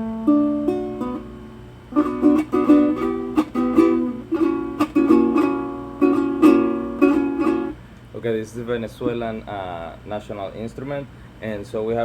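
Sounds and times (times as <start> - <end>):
strummed string instrument chords: 0.0 - 7.8.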